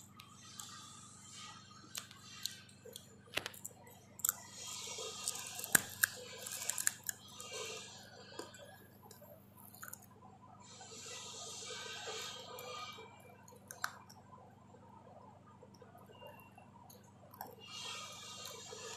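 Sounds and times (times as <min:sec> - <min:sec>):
crunching crisp cracklings: 0:00.0 - 0:10.1.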